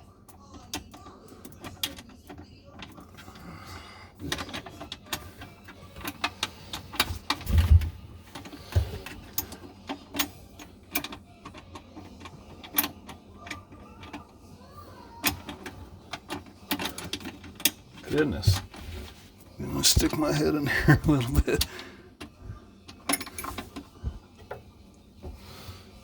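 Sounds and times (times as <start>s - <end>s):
metal parts clicking and tapping: 0.2s - 3.4s, 4.2s - 14.3s, 15.2s - 18.8s, 21.1s - 24.7s.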